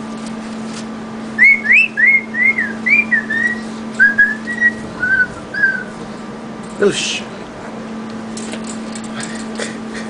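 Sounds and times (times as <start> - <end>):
short whistled notes: 1.4 - 6.0.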